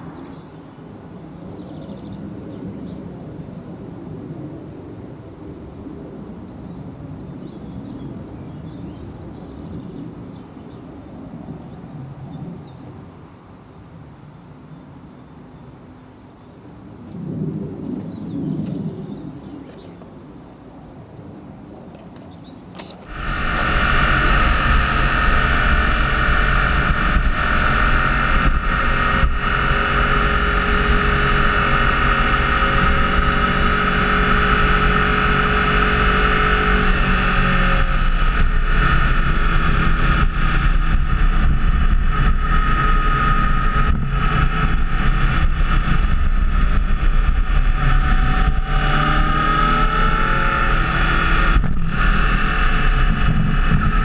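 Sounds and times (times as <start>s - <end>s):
wind rush on microphone: 16.8s - 54.0s
motorcycle engine: 22.7s - 54.0s.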